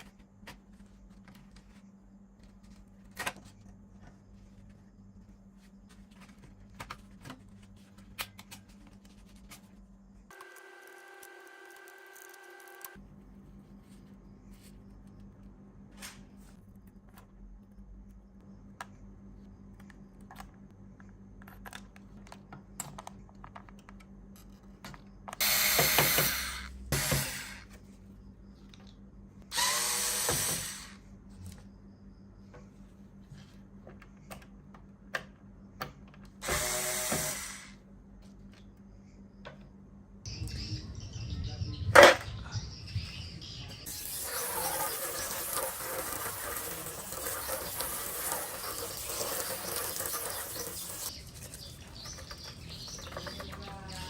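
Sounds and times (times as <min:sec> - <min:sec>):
handheld power tool motor: 0:25.4 - 0:27.6, 0:29.5 - 0:31.0, 0:36.4 - 0:37.8, 0:43.9 - 0:51.1.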